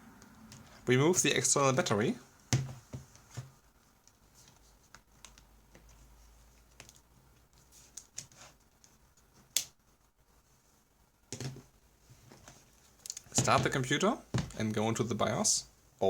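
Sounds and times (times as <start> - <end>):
handling knocks: 13.3 - 14.7.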